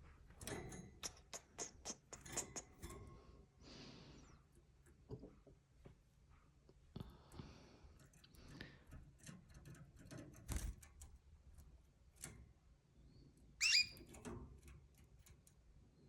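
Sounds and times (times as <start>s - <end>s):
bird chirps: 13.6s - 14.0s.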